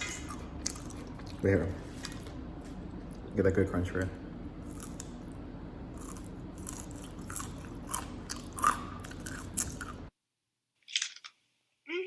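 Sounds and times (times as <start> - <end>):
crunching fries being chewed: 0.0 - 2.4, 4.6 - 10.1
low background hum: 0.0 - 10.2.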